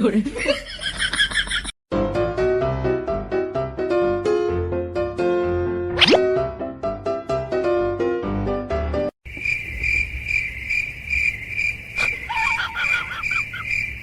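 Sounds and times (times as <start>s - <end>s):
piano-like music: 1.9s - 9.1s
cricket chirping: 9.2s - 14.0s.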